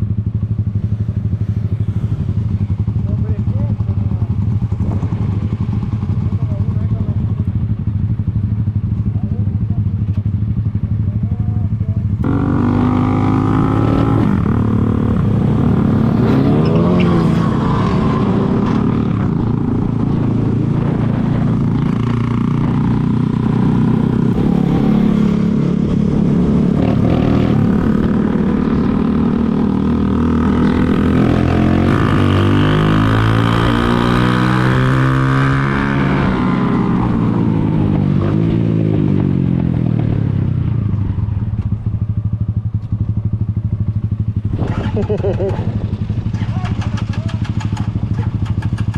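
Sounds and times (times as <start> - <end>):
motorcycle engine running: 0.0 - 48.9
wind noise: 12.2 - 41.8, 44.4 - 47.1.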